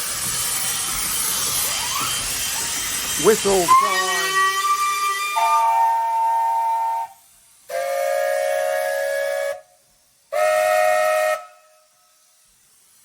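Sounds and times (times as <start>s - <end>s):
steam whistle blasts: 3.4s - 12.3s.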